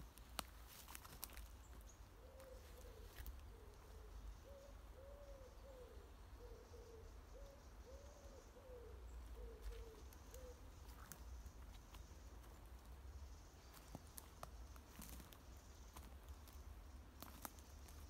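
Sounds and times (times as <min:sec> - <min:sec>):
soft bird hooting: 0:02.2 - 0:10.9.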